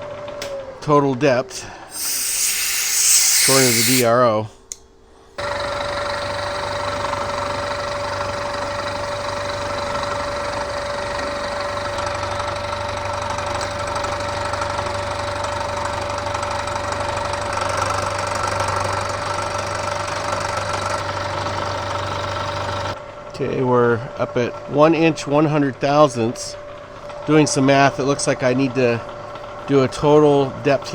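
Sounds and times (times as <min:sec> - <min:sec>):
milling machine cutting metal: 0:01.9 - 0:04.1.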